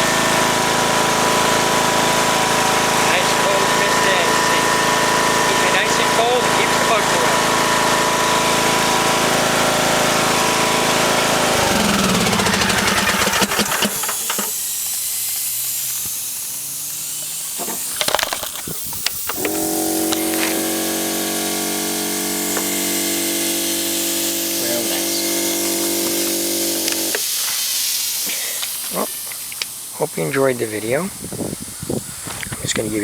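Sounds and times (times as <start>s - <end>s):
lawn tractor engine winding down: 0.0s - 30.0s
hiss: 10.9s - 33.0s
steady hum: 15.6s - 27.2s.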